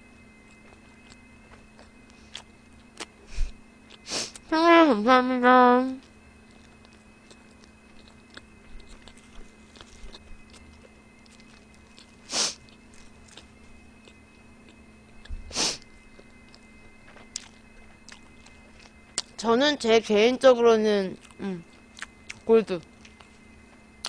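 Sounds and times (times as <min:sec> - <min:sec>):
faint steady hum: 0:00.0 - 0:24.0
quiet chewing and mouth clicks: 0:00.4 - 0:03.2, 0:06.0 - 0:15.4, 0:16.2 - 0:19.4, 0:23.0 - 0:23.4.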